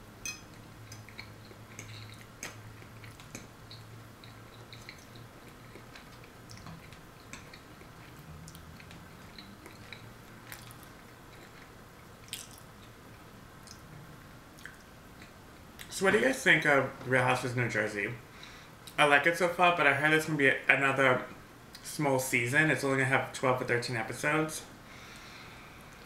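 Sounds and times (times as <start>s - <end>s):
low steady hum: 0.0s - 26.0s
close-up chewing with mouth clicks: 0.8s - 13.0s, 14.5s - 15.9s.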